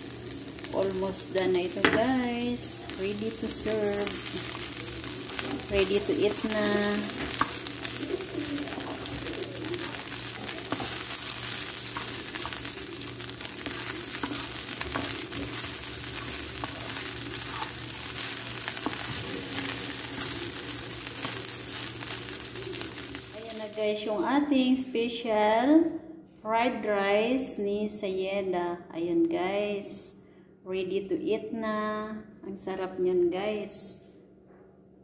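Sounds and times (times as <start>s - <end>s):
rice sizzling in a wok: 0.0s - 24.0s
wooden spatula scraping: 0.6s - 23.5s.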